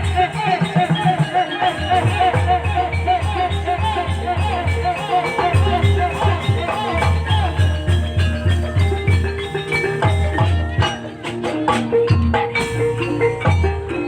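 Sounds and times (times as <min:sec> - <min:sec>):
struck mallet instruments melody: 0:00.0 - 0:14.0
steady low drum beat: 0:12.6 - 0:14.0.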